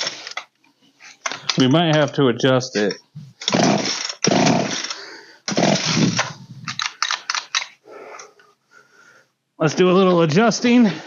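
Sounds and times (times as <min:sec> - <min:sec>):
chainsaw pull-start cranking: 0:02.8 - 0:07.8.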